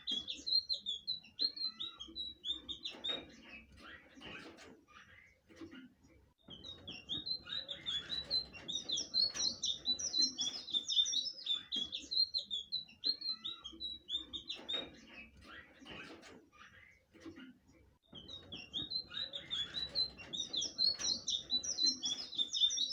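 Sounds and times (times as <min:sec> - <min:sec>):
bird singing high chirping notes: 0:06.6 - 0:14.6, 0:18.2 - 0:22.9.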